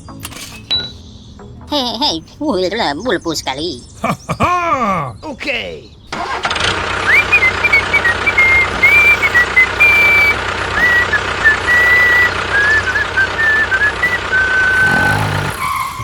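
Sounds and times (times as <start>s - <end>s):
vehicle engine running: 6.1s - 16.0s
person whistling a tune: 7.1s - 16.0s.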